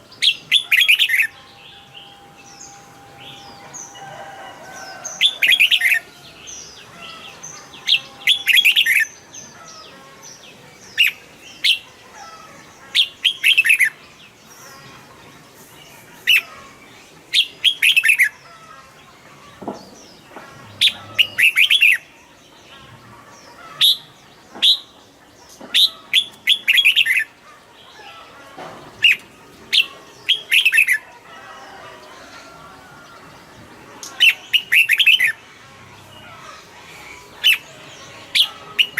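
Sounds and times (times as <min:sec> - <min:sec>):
bird chirping phrases: 0:00.0 - 0:19.2.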